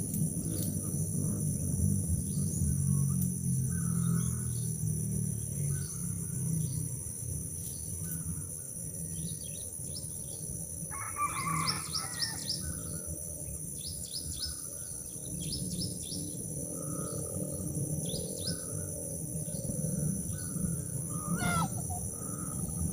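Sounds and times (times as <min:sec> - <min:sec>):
steady low rumble: 0:00.0 - 0:10.9, 0:12.6 - 0:22.9
birds chirping: 0:11.4 - 0:22.9.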